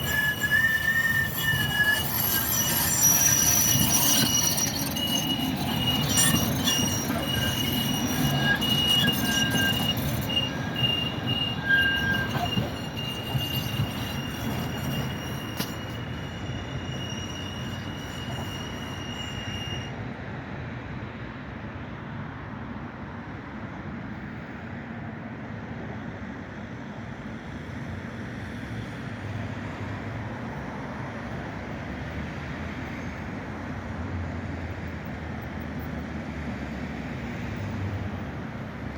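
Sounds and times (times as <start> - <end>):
tram wheels squealing: 0.0 - 20.8, 28.8 - 38.9
low rumble of tram: 0.0 - 38.9.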